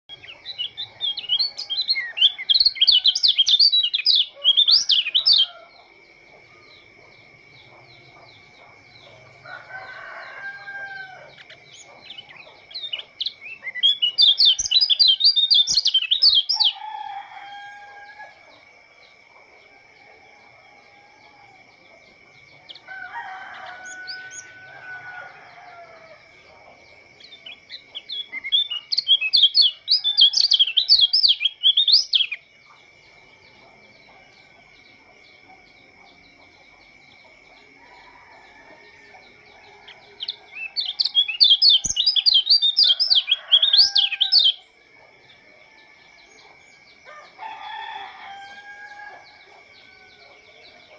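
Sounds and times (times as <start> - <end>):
rooster crowing: 4.3 - 7.1, 7.8 - 12.4, 14.4 - 18.8, 19.6 - 21.9, 22.7 - 26.6, 29.3 - 31.5, 37.6 - 44.7, 45.3 - 50.9.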